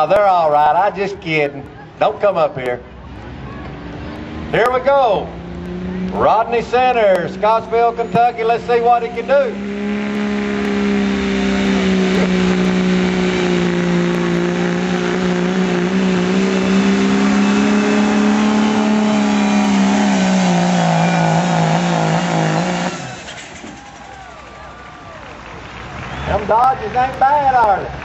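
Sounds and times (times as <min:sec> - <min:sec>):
diesel truck engine at high revs: 0:00.0 - 0:28.0.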